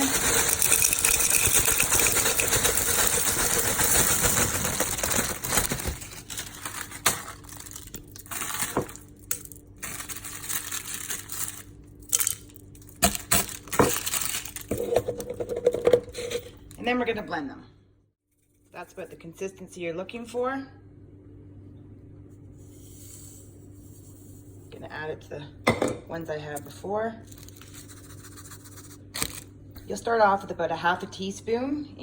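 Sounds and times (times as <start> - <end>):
egg shells rattling in blender cup: 0.0 - 16.8.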